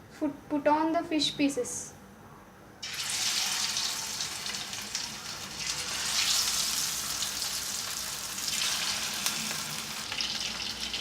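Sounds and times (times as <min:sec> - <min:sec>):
fish sizzling in hot oil: 0:02.8 - 0:11.0.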